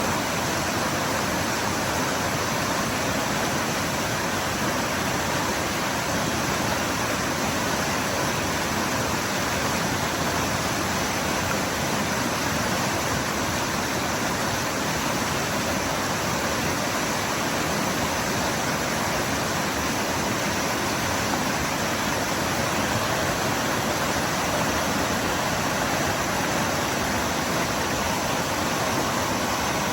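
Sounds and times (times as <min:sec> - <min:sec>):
waterfall pouring and splashing: 0:00.0 - 0:29.9.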